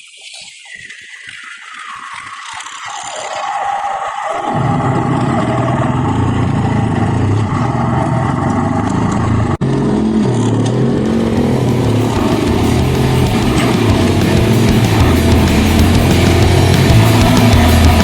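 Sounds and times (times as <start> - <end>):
dirt bike engine running: 9.1 - 18.0.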